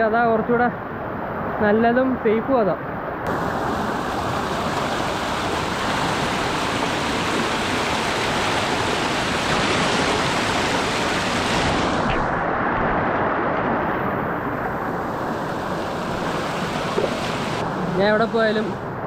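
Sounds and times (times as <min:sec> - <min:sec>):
waterfall stream rushing over rocks: 0:03.3 - 0:12.5, 0:14.8 - 0:17.7.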